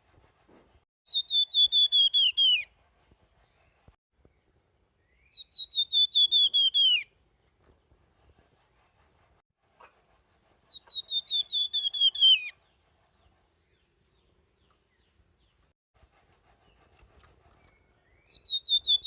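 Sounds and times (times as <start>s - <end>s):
songbird whistled song: 1.0s - 2.7s, 5.0s - 7.2s, 10.7s - 15.6s, 17.5s - 19.0s.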